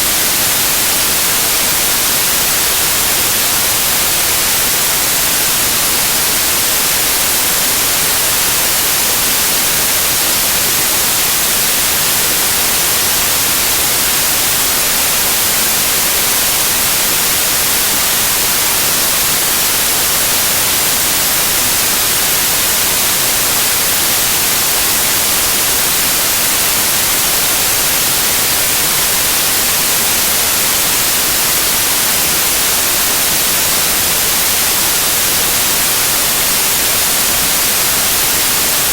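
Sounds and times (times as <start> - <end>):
white noise hiss: 0.0 - 38.9.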